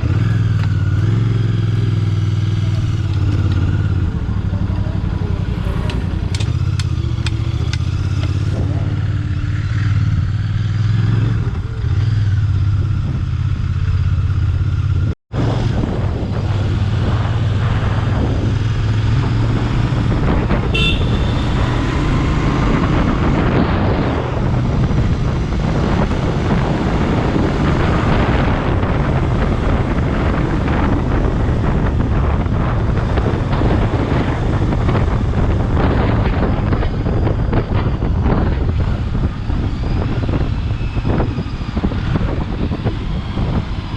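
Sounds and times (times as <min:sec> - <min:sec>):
motorcycle engine running: 0:00.0 - 0:43.9
wind noise on microphone: 0:00.0 - 0:43.9
horn: 0:20.7 - 0:21.7.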